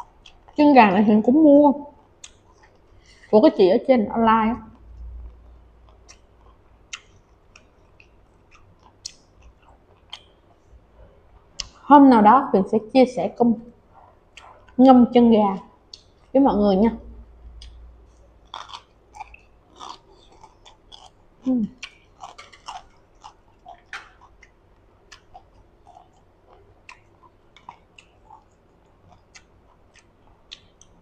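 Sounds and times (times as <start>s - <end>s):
wet mouth clicks: 1.9s - 2.8s, 4.8s - 10.3s, 14.3s - 14.8s, 18.5s - 31.0s
crunchy vegetable chewing: 4.7s - 10.4s, 17.5s - 31.0s.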